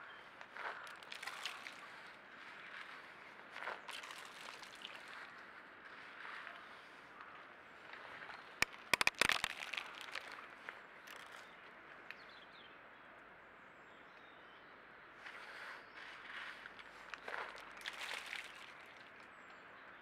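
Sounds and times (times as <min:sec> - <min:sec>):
run of sharp clicks: 0:08.6 - 0:10.4.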